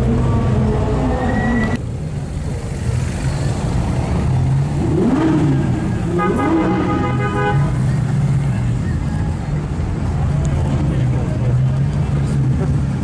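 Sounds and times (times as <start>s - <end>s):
sports car engines running: 1.8s - 13.0s
engine revving: 3.3s - 8.8s.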